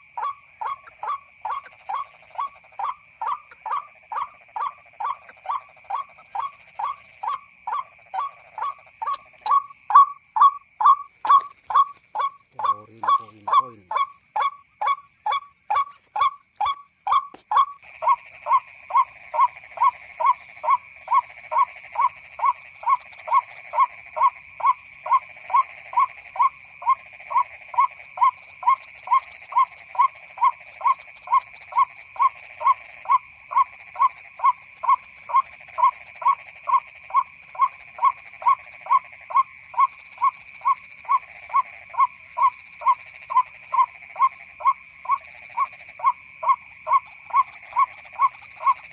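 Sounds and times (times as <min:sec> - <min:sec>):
waterhen call from a player: 0:03.2 - 0:48.8.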